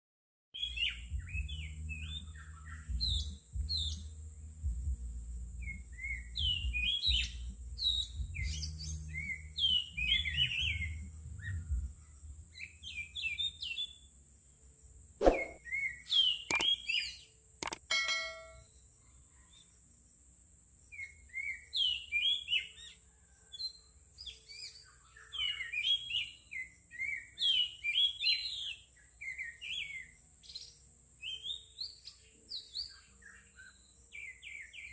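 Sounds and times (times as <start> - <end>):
songbirds chirping and twittering: 0.6 - 34.9
sharp clicks: 16.5 - 16.7, 17.6 - 17.9.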